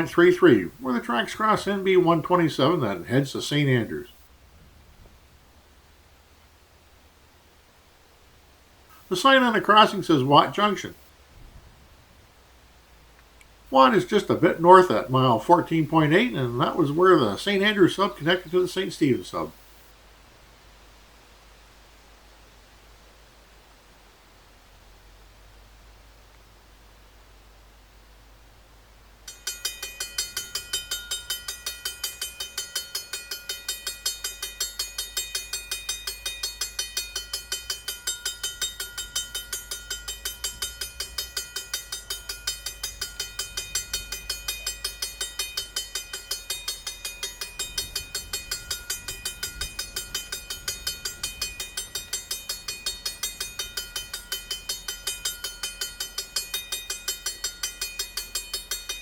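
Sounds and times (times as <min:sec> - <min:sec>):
railroad crossing bell ringing: 0:00.0 - 0:03.2, 0:13.7 - 0:19.5, 0:29.3 - 0:59.0.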